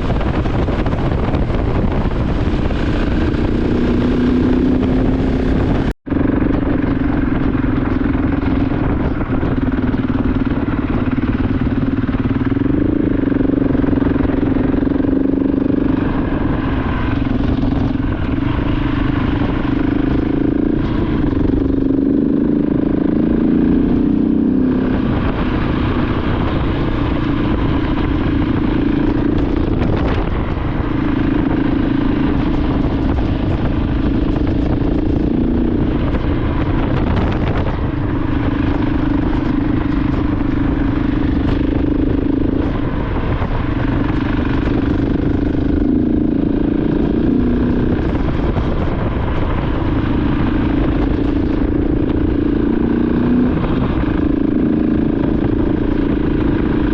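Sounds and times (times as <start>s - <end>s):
motorcycle engine running: 0.0s - 56.9s
wind noise: 0.0s - 56.9s.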